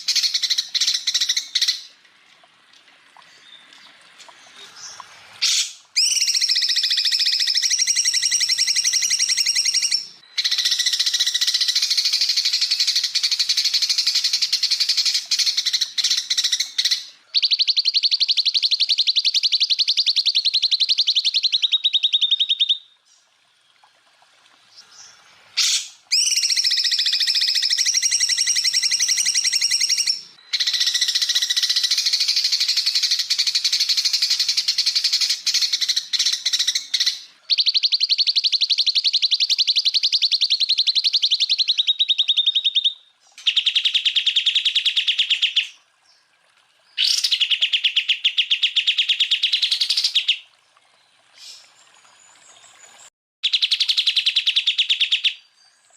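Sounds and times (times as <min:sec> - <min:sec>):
bird singing fast trills: 0:04.8 - 0:22.9, 0:25.0 - 0:45.8, 0:53.4 - 0:55.6.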